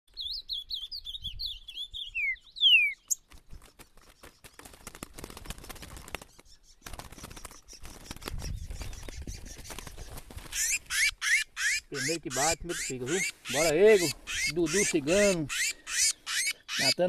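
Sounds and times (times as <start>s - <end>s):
bird singing whistled notes: 0.1s - 3.2s
rustling and crackling noise: 3.2s - 10.9s.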